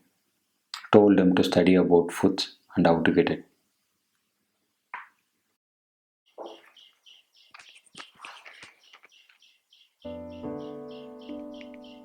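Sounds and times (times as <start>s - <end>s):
other bird calls: 6.3s - 12.0s
short high bird chirps: 6.4s - 12.0s.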